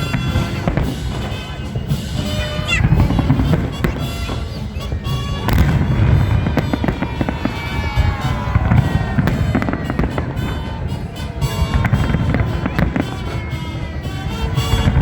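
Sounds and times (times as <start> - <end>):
booming firework bursts: 0.0 - 15.0
music playing: 0.0 - 15.0.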